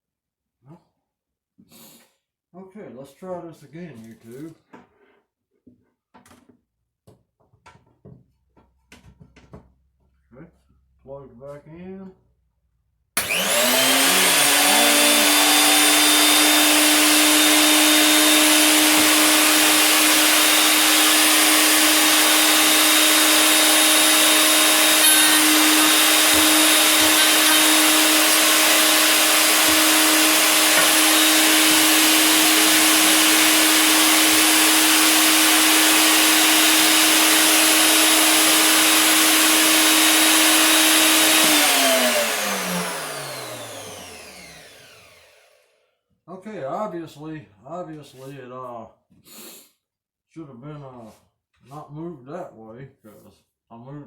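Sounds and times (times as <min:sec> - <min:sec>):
router whining: 0:13.2 - 0:45.8.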